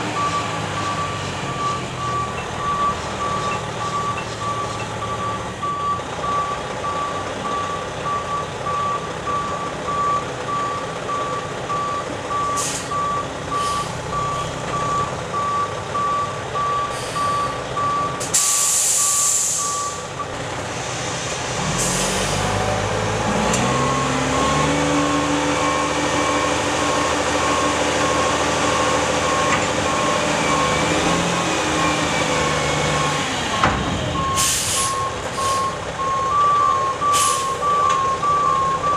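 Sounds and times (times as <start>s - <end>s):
truck reverse alarm beeping: 0.0s - 20.4s, 21.8s - 38.9s
diesel engine revving: 0.0s - 38.9s
loud air-brake hiss: 12.6s - 12.9s, 18.2s - 20.0s, 34.4s - 35.7s, 37.1s - 37.6s
short air hisses: 18.3s - 19.9s, 34.4s - 35.6s, 37.2s - 37.6s.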